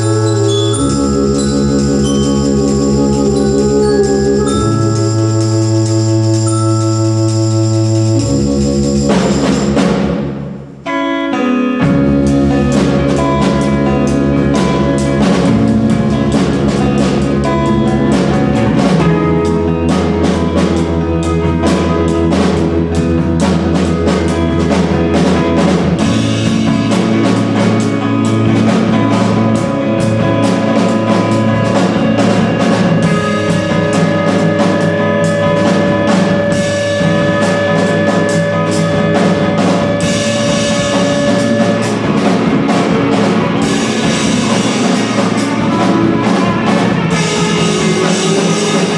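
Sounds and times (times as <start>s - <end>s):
drum kit steady beat: 0.0s - 10.8s, 11.8s - 48.9s
live band playing: 0.0s - 48.9s.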